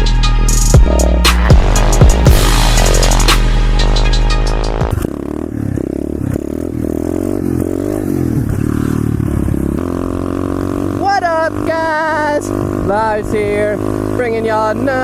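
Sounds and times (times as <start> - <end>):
pit bike engine revving: 0.8 - 15.0.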